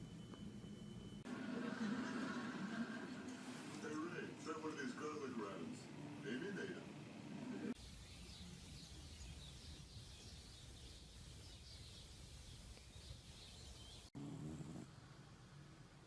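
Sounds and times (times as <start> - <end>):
low steady hum: 0.0 - 16.0
faint bird chirps: 7.8 - 14.1.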